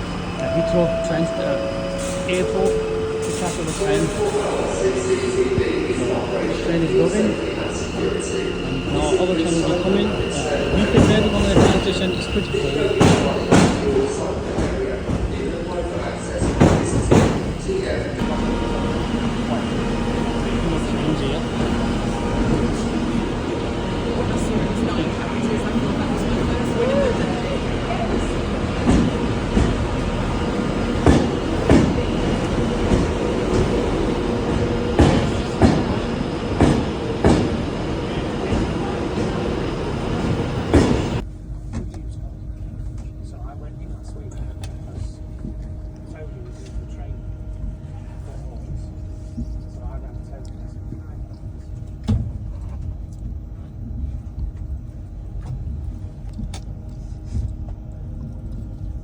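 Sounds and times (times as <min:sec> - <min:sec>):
train running on rails: 0:00.0 - 0:59.0
wheels clacking over rail joints: 0:18.2 - 0:41.2.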